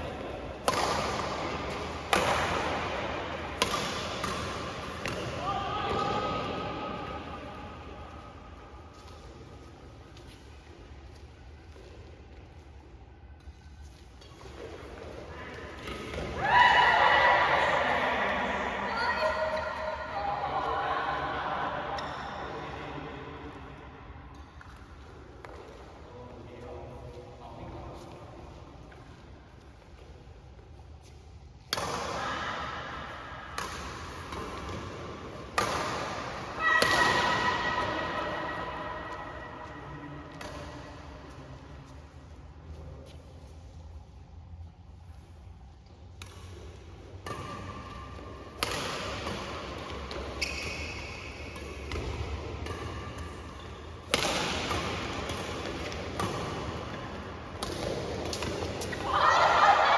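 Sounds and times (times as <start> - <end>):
racket striking shuttlecock: 0.5 - 6.1, 33.5 - 39.7, 46.1 - 59.0
shoe squeaks: 50.3 - 51.6.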